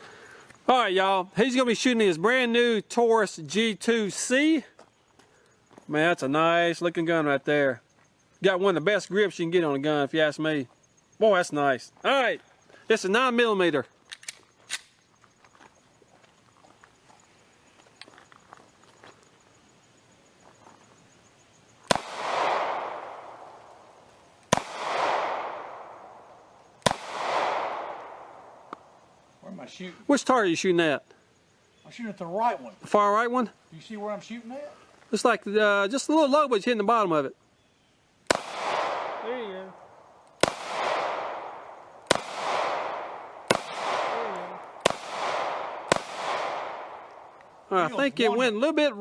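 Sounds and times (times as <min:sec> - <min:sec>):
pistol shots: 0:21.9 - 0:23.6, 0:24.5 - 0:26.2, 0:26.8 - 0:28.5, 0:38.3 - 0:39.4, 0:40.4 - 0:47.2.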